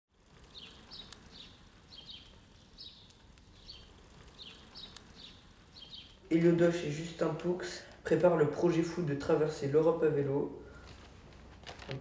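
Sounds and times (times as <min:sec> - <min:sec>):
faint outdoor ambience: 0:00.1 - 0:12.0
small bird chirping: 0:00.2 - 0:07.4.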